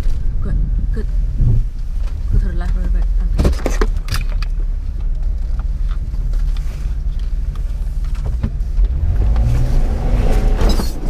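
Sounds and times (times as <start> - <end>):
off-road vehicle engine revving: 4.7 - 11.0.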